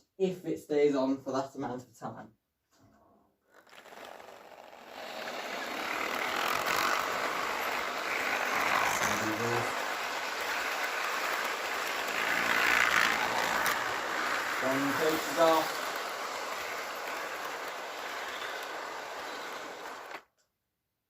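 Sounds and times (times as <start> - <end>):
model train wheels rattling on rails: 3.7 - 20.2.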